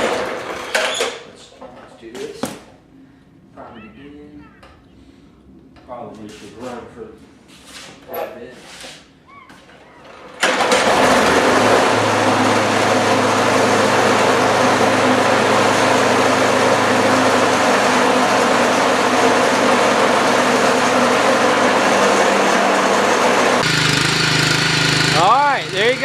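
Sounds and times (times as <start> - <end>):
lawn mower engine starting: 0.0 - 1.2, 10.0 - 26.0.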